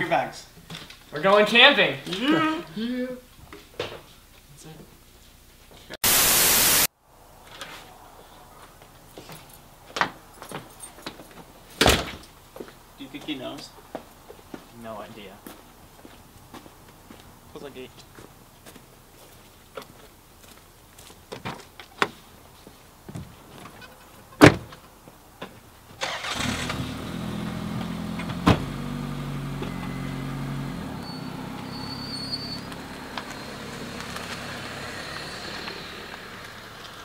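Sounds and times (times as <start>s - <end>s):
door thud: 24.4s - 24.7s
car engine starting and idling: 26.0s - 37.0s.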